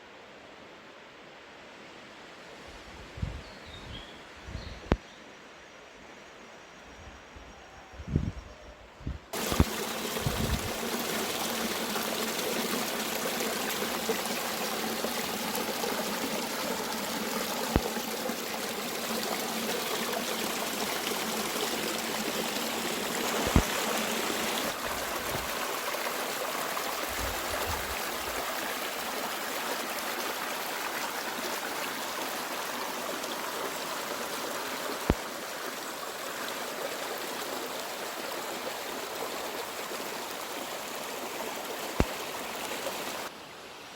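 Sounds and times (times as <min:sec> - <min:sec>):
stream flowing: 0:09.3 - 0:43.9.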